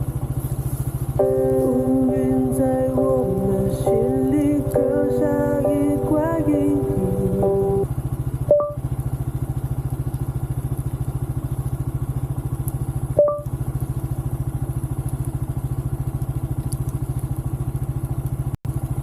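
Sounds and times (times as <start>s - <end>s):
motorcycle engine idling: 0.0s - 19.0s
short beep: 8.5s - 8.8s, 13.2s - 13.5s.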